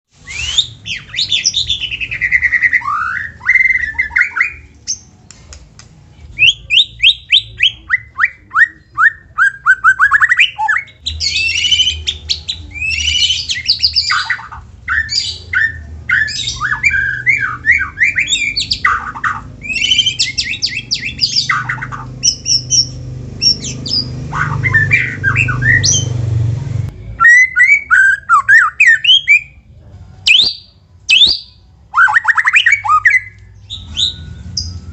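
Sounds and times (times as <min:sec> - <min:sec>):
bird singing whistles and trills: 0:00.2 - 0:05.1, 0:06.3 - 0:26.2, 0:27.0 - 0:29.6, 0:30.3 - 0:34.9
low hum: 0:10.9 - 0:27.2.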